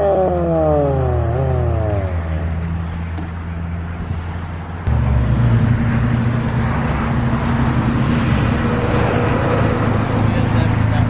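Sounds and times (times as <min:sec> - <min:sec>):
race car engine running: 0:00.1 - 0:11.0.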